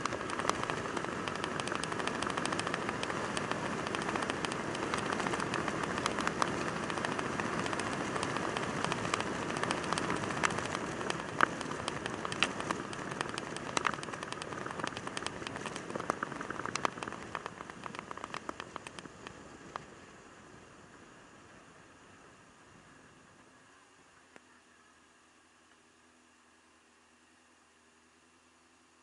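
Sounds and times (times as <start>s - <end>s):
raindrops ticking on camera: 0.0s - 19.8s
wind and road noise: 0.0s - 23.6s.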